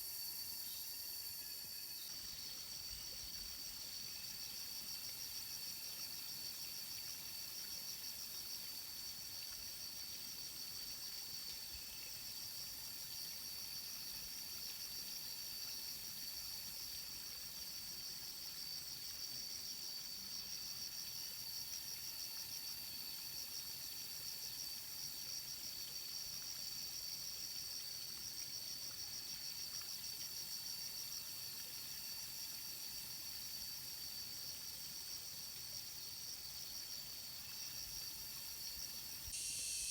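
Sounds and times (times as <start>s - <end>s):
insects trilling: 0.0s - 9.3s, 35.7s - 39.9s.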